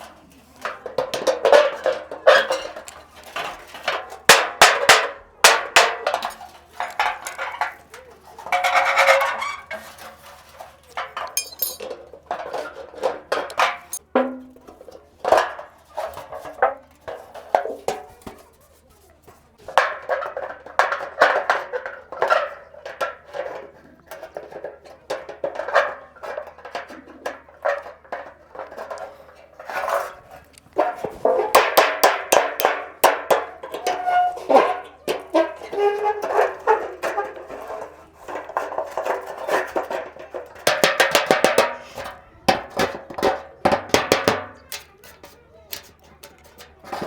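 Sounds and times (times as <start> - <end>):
knocks on thin metal dish: 42.5 - 44.9.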